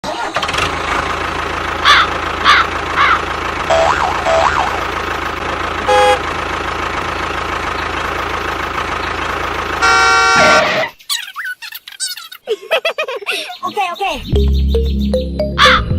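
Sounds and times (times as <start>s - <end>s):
motor humming: 1.4s - 10.7s
horn beeps: 3.7s - 4.8s, 5.8s - 6.2s, 9.8s - 11.0s
warbling chirps: 3.7s - 4.9s.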